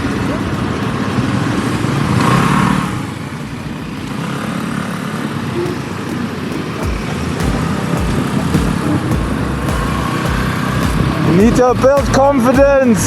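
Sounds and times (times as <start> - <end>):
motorcycle riding: 0.0 - 13.0
road and traffic noise: 0.0 - 13.0
low irregular thumps: 5.6 - 12.8.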